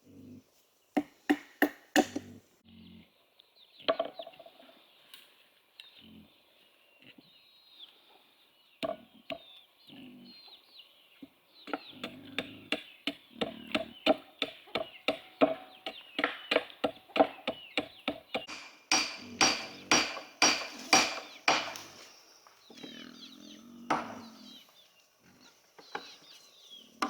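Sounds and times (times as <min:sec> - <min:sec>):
small birds chirping: 0:00.0 - 0:27.0
hand tool knocking on wood: 0:13.7 - 0:22.0, 0:23.9 - 0:24.3.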